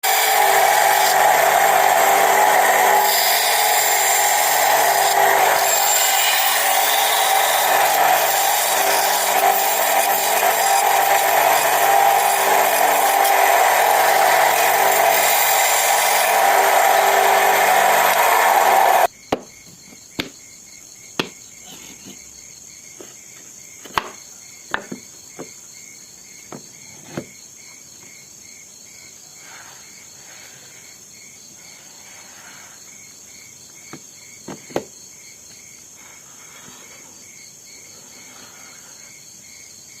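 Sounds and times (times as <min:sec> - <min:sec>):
power tool cutting wood: 0:00.0 - 0:19.1
insects chirping: 0:19.0 - 0:40.0
knocks of wooden pieces: 0:19.3 - 0:20.4, 0:21.2 - 0:21.4, 0:23.8 - 0:25.6, 0:33.9 - 0:34.9.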